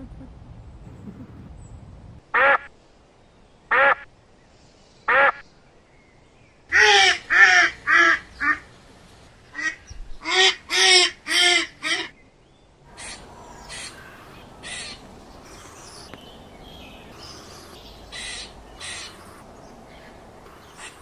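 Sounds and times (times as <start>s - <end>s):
bird calling harshly: 12.9s - 21.0s.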